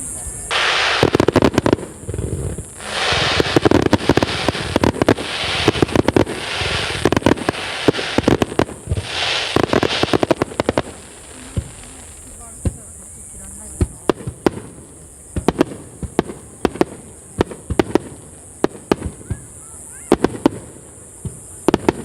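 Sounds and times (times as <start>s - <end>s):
hissing rush: 0.0s - 17.2s
fireworks crackling: 0.0s - 22.0s.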